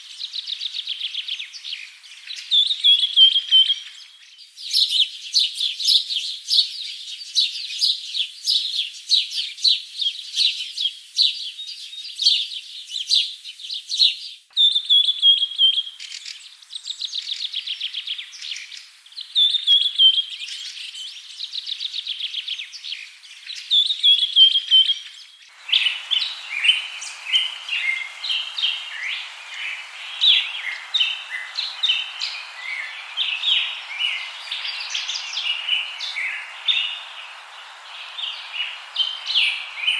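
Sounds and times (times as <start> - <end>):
steady hiss: 25.5 - 39.9
birds chirping and singing: 25.6 - 39.9.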